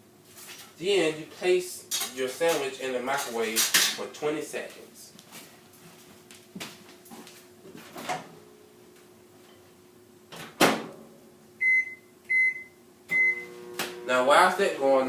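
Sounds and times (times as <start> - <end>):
high keypad beeps: 11.6 - 13.5.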